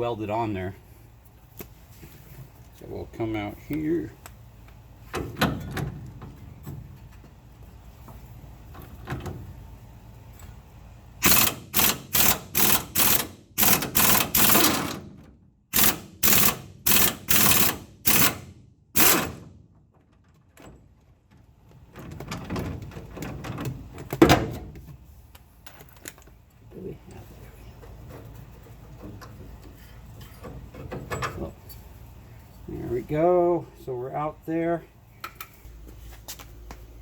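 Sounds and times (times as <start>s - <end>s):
power wrench bursts: 11.2s - 15.0s, 15.7s - 19.5s.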